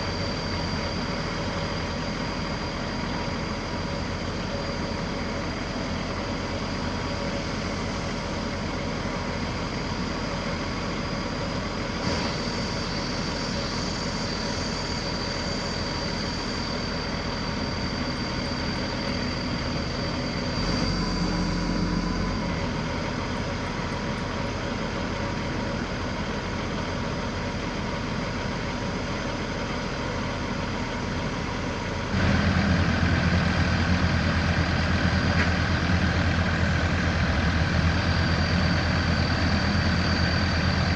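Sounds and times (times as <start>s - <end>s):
diesel engine running: 0.0s - 40.9s
thin high whistle: 9.7s - 23.5s.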